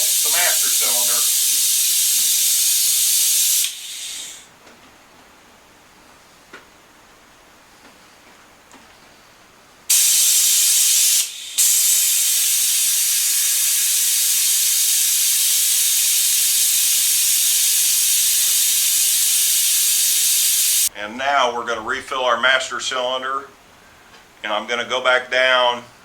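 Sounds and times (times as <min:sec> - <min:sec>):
pneumatic brake bleeder hissing: 0:00.0 - 0:04.5, 0:09.9 - 0:20.9.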